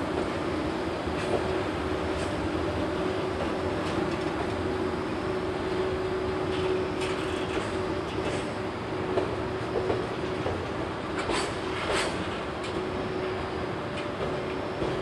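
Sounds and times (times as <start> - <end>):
train wheels rumbling on rail: 0.0 - 15.0
wheels clacking over rail joints: 6.5 - 12.8.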